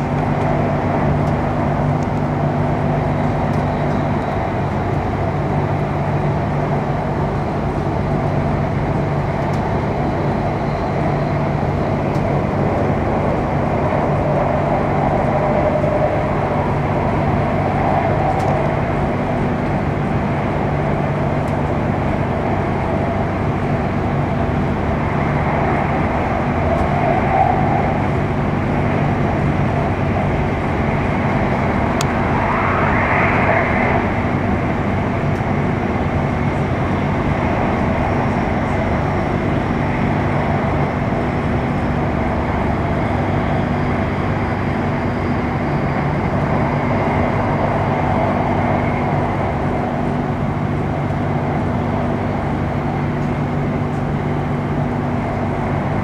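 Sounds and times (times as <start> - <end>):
train cabin rumble and hum: 0.0 - 56.0
short rising whine: 22.8 - 36.1.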